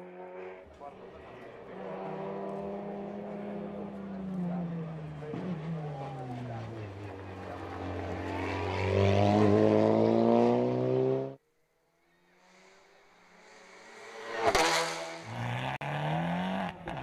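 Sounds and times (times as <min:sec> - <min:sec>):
race car engine accelerating: 0:00.0 - 0:11.4
race car passing: 0:00.0 - 0:17.0.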